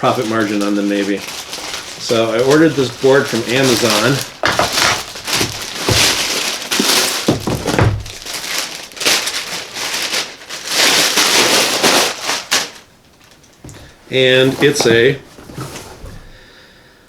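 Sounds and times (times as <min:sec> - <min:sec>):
packaging crinkling and rustling: 0:00.0 - 0:16.5
small knocks: 0:03.7 - 0:08.3.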